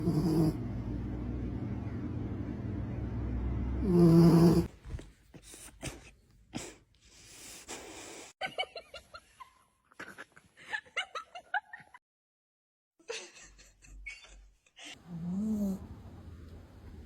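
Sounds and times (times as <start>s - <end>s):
loud low drone: 0.0s - 4.7s.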